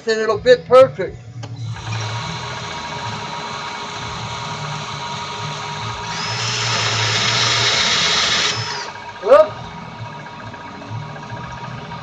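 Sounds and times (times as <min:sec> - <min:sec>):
small electric power tool running: 0:01.7 - 0:09.0.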